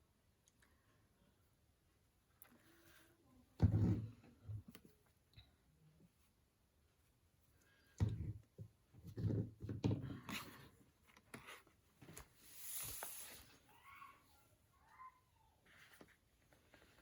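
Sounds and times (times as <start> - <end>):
paper swish: 12.4 - 13.5.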